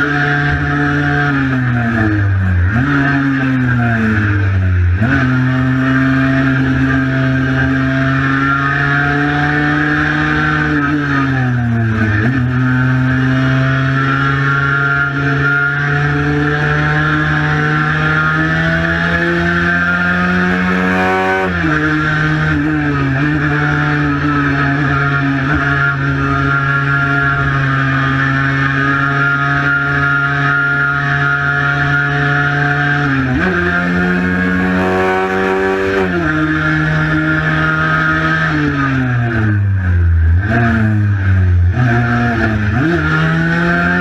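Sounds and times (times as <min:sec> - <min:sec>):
two-stroke motorcycle engine running: 0:16.8 - 0:22.1, 0:32.9 - 0:37.5.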